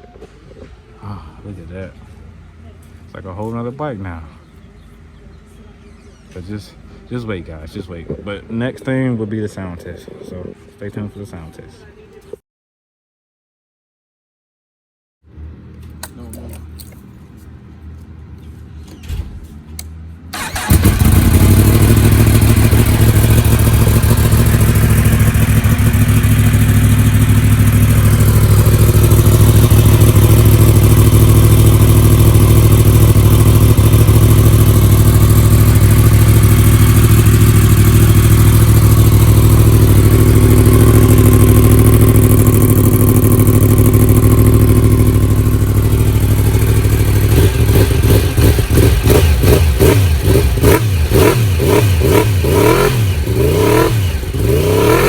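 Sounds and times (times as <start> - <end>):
motorcycle engine running: 20.4 - 55.0.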